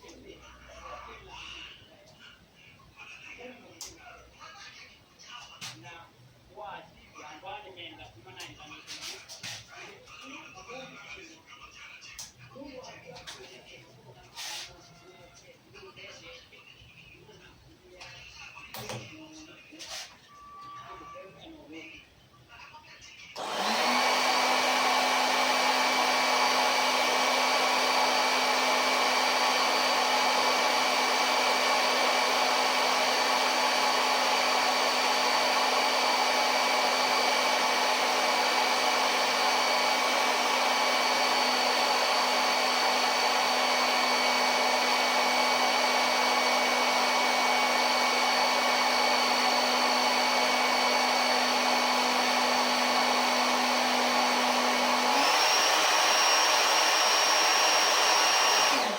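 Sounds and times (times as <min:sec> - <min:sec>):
electric fan motor whining: 0:23.4 - 0:58.9.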